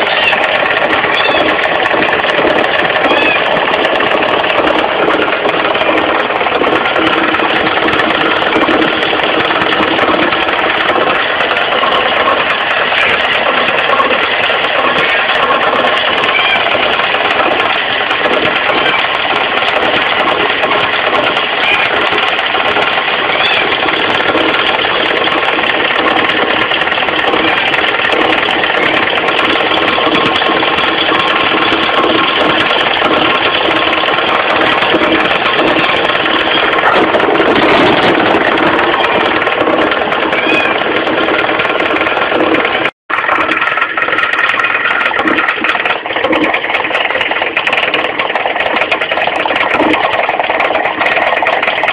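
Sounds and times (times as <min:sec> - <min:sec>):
car engine idling: 0:00.0 - 0:51.9
loose pulley knocking rattle: 0:00.0 - 0:51.9.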